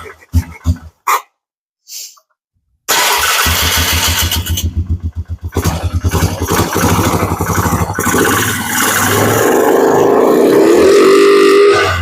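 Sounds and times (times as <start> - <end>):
atv engine running: 3.0 - 10.7.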